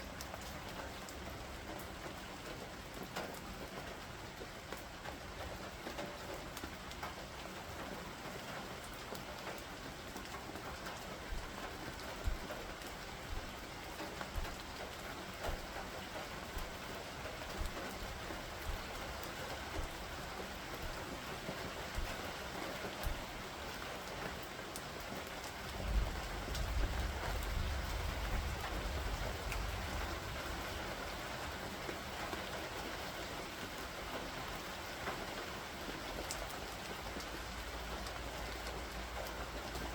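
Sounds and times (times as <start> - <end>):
steady rain falling: 0.0 - 39.9
sharp drip ticks: 8.8 - 25.6, 36.2 - 39.9
low rumble of thunder: 25.6 - 31.2.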